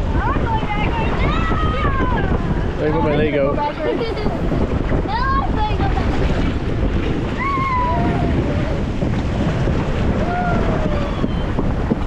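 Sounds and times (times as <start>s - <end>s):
water rushing under a raft: 0.0s - 12.0s
wind buffeting microphone: 0.0s - 12.0s.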